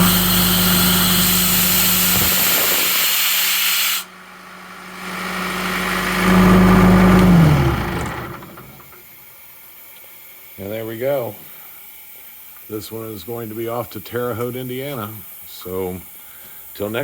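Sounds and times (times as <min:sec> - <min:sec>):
compressed air hissing: 0:00.0 - 0:04.1, 0:09.0 - 0:17.0
air compressor engine running: 0:00.0 - 0:09.0.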